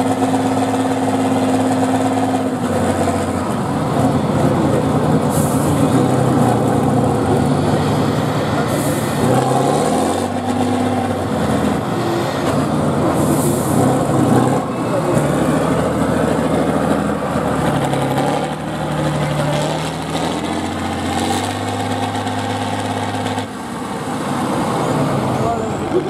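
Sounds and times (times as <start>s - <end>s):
truck engine revving under load: 0.0s - 26.0s
short hisses: 5.3s - 5.8s, 13.2s - 13.8s.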